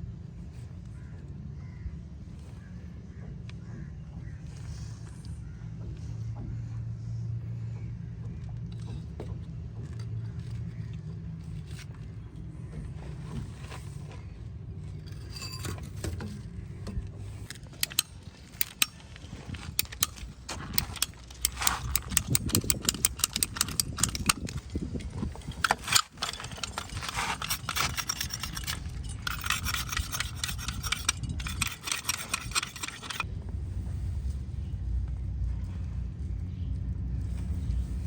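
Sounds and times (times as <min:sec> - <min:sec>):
scraping and clicking on pipe fitting: 0:15.0 - 0:33.3.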